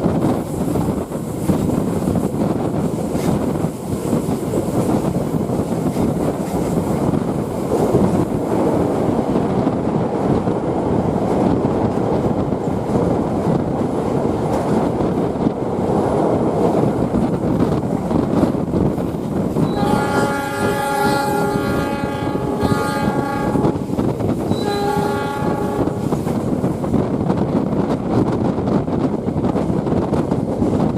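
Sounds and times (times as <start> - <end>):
train rumbling on rails: 0.0 - 30.9
locomotive horn blasts: 19.6 - 23.9, 24.5 - 26.1.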